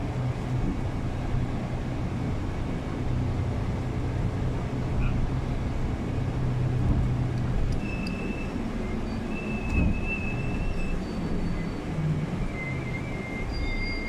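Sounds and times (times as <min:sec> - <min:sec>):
bus interior rumble: 0:00.0 - 0:14.0
thin high squeals: 0:07.8 - 0:14.0.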